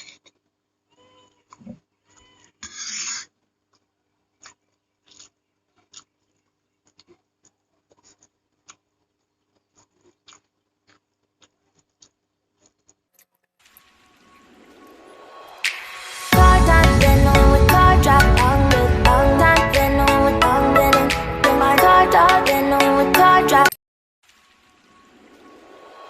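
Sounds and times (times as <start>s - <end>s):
music: 15.1s - 23.7s.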